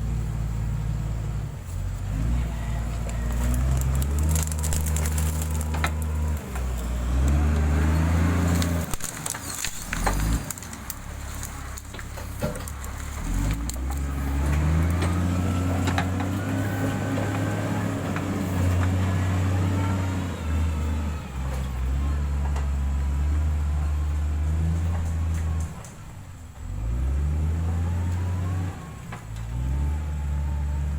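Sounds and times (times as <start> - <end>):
diesel engine under load: 0.0 - 30.9.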